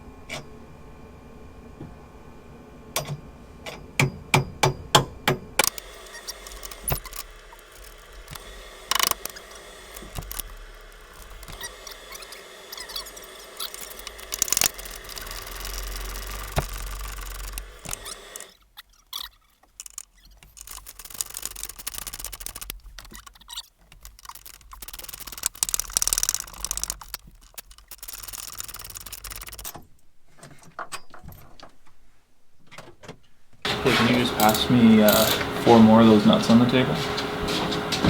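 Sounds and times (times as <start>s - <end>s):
low hum: 5.6s - 18.6s
nuts and bolts clinking: 5.6s - 31.7s, 33.8s - 35.6s.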